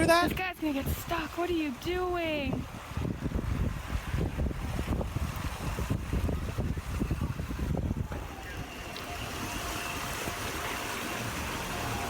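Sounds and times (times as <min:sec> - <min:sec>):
water rushing and churning: 0:00.0 - 0:12.0
wind rumbling on microphone: 0:00.0 - 0:12.0.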